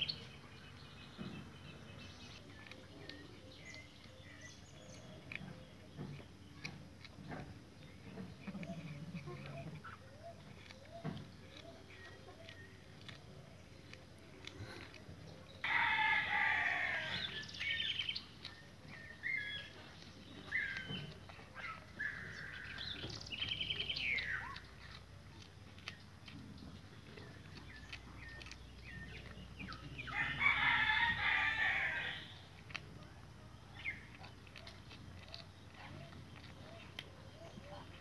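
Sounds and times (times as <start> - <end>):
rooster crowing: 15.6 - 17.2, 30.1 - 32.3.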